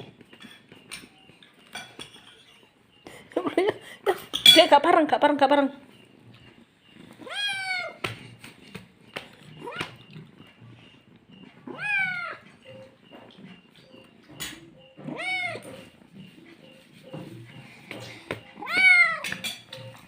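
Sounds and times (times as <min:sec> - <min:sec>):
cat meowing: 0:07.2 - 0:08.0, 0:09.6 - 0:10.0, 0:11.7 - 0:12.4, 0:15.1 - 0:15.6, 0:18.6 - 0:19.3.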